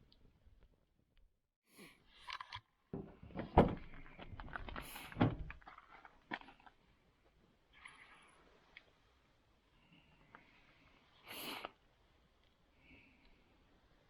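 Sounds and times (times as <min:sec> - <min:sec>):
handling knocks and clatter: 0:03.0 - 0:06.5.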